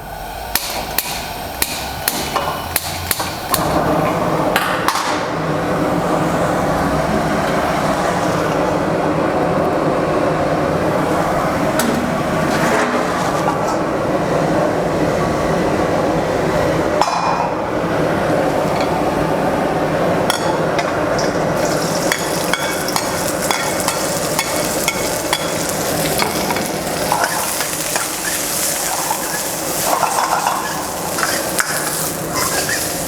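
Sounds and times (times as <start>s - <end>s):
food sizzling in a pan: 21.6s - 33.0s.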